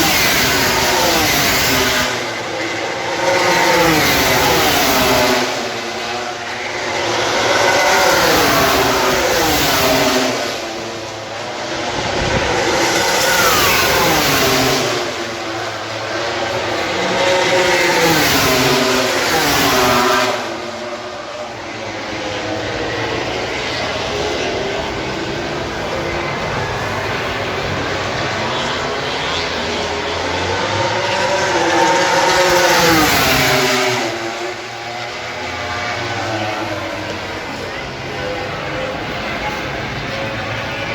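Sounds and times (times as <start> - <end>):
racing motorcycles passing at high revs: 0.0 - 40.9.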